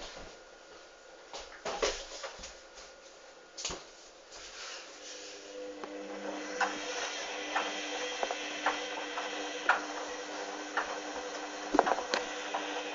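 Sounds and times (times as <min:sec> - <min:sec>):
washing machine drum motor humming: 0:05.3 - 0:12.9.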